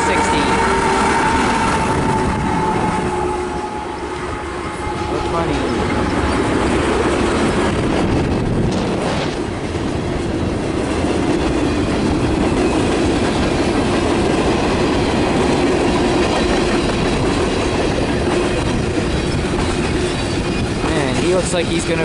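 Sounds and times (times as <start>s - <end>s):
train rumble: 0.0s - 22.0s
freight train wheels clicking: 3.9s - 22.0s.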